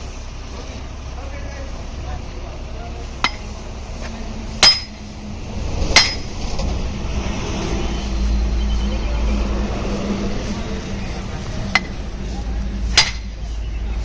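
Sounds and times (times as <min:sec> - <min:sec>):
low rumble: 0:00.0 - 0:13.9
hammer ringing on metal: 0:04.6 - 0:05.0, 0:06.0 - 0:06.3, 0:11.7 - 0:12.0, 0:12.9 - 0:13.4.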